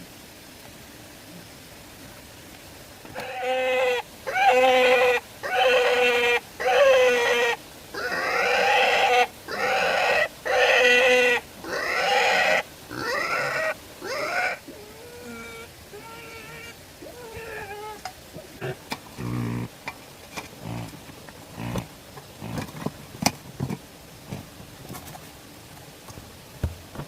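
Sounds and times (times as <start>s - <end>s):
animal crying out: 3.1s - 19.7s.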